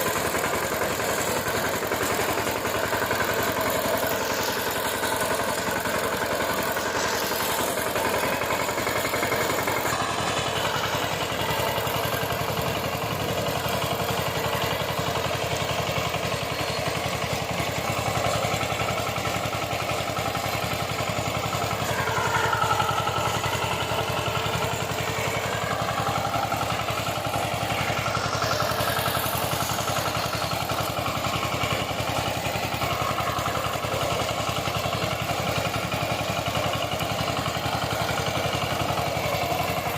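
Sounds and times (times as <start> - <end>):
diesel engine chugging: 0.0 - 39.9
wavering whine: 19.5 - 34.0.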